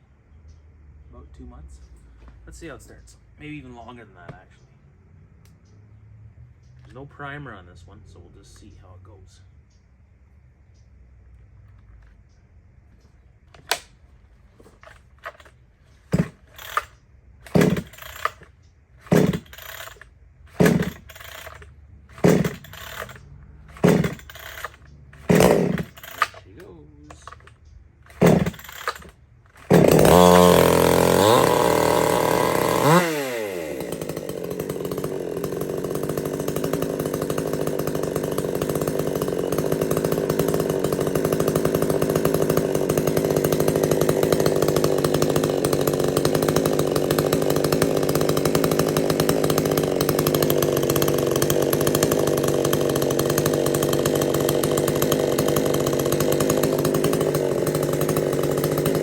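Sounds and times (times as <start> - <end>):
chainsaw engine running: 14.6 - 59.0.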